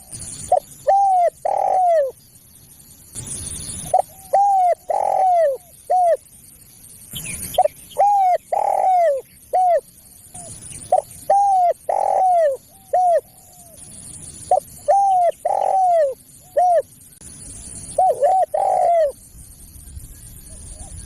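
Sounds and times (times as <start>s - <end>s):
dove cooing: 0.0s - 2.2s, 3.9s - 6.2s, 7.5s - 13.8s, 14.5s - 16.9s, 17.9s - 19.2s, 20.4s - 21.0s.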